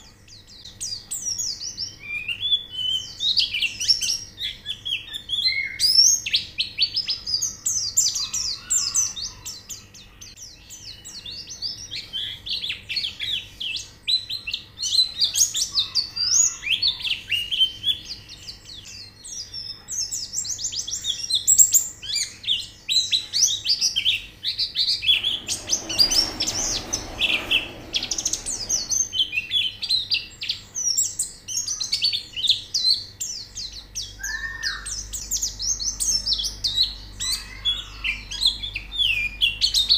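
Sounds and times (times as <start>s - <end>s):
birds chirping and twittering: 24.2s - 29.8s.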